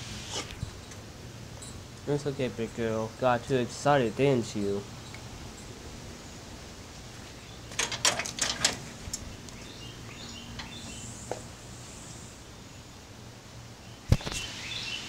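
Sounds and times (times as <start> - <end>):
steady low hum: 0.0 - 14.2
sharp clicks and knocks: 7.7 - 9.3.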